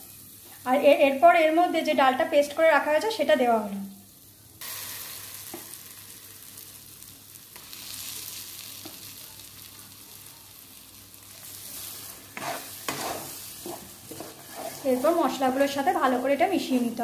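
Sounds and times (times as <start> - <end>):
paste sizzling in hot oil: 4.6 - 17.0
spatula stirring and scraping: 11.4 - 17.0.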